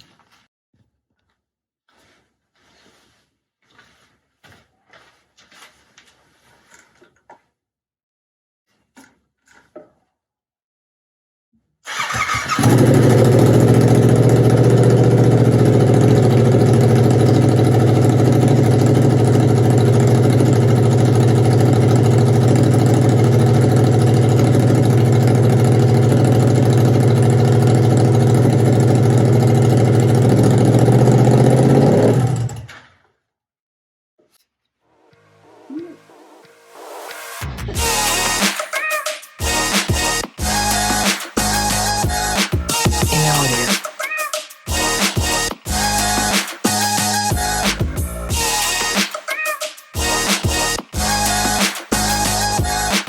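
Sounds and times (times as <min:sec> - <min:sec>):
motorcycle engine idling loudly: 0:11.9 - 0:32.5, 0:39.6 - 0:43.7.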